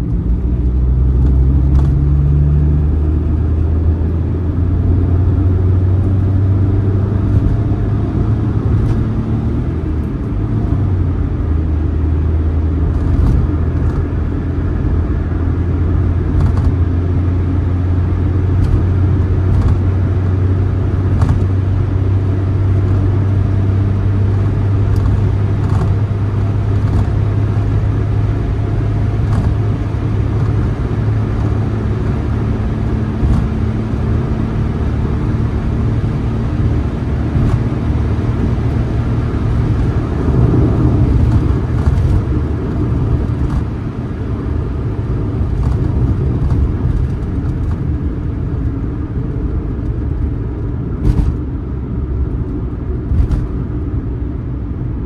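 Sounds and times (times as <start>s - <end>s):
car engine droning from inside: 0.0s - 55.0s
tyre and road noise: 0.0s - 55.0s.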